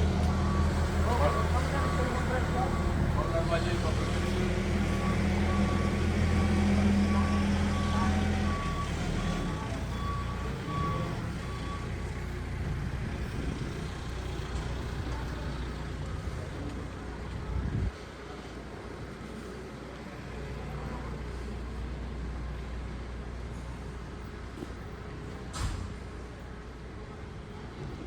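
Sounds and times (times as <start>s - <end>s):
heavy engine running: 0.0s - 28.0s
reversing alarm beeping: 0.1s - 12.4s.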